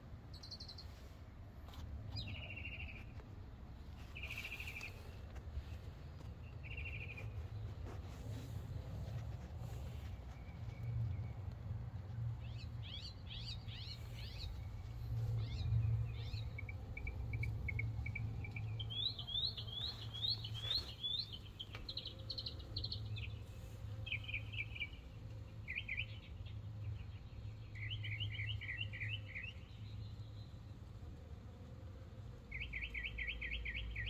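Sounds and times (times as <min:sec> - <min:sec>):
small songbirds chirping: 0:00.1 - 0:01.1, 0:01.7 - 0:03.2, 0:03.9 - 0:31.0, 0:32.3 - 0:34.0
steady low hum: 0:01.5 - 0:25.6.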